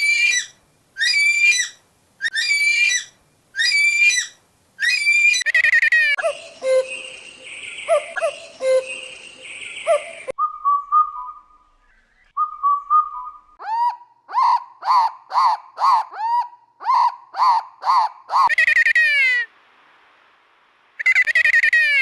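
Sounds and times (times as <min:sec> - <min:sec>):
bird whistling calls: 0:06.2 - 0:18.5.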